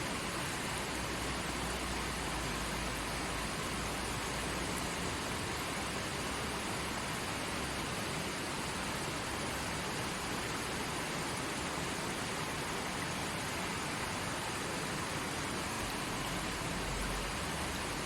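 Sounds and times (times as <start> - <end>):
stream flowing: 0.0 - 18.0.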